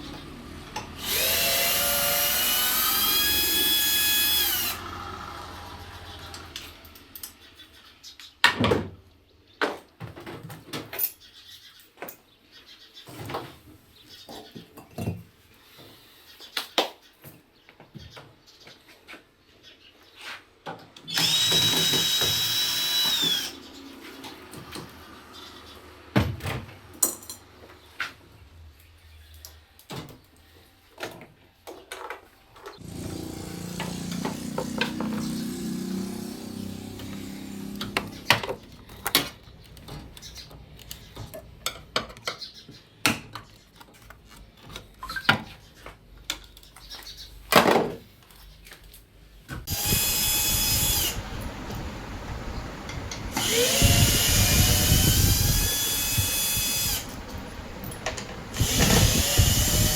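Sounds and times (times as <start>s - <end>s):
electric drill-driver whining: 1.0s - 6.7s, 21.1s - 23.7s, 32.8s - 38.3s, 49.7s - 52.4s, 53.0s - 59.9s.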